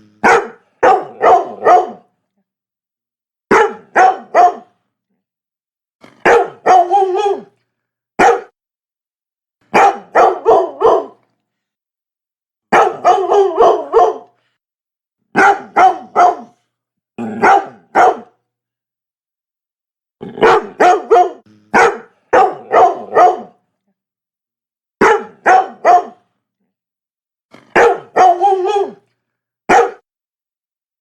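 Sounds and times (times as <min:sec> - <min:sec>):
dog barking: 0:00.2 - 0:02.1, 0:03.5 - 0:04.8, 0:06.2 - 0:07.5, 0:08.2 - 0:08.6, 0:09.7 - 0:11.2, 0:12.7 - 0:14.4, 0:15.3 - 0:16.6, 0:17.3 - 0:18.4, 0:20.4 - 0:23.6, 0:25.0 - 0:26.3, 0:27.7 - 0:29.0, 0:29.7 - 0:30.1.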